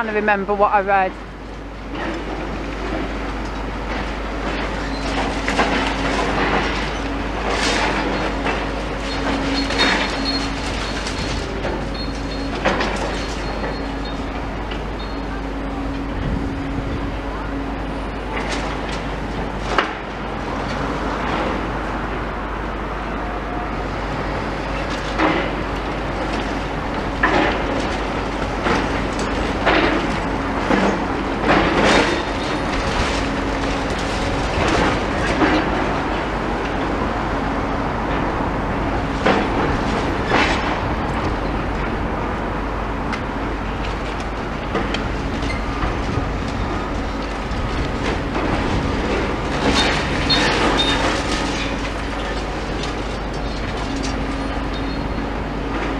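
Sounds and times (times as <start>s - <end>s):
excavator engine drone: 0.0s - 55.9s
debris clanking and crashing: 4.0s - 15.2s, 25.0s - 36.4s, 44.7s - 55.1s.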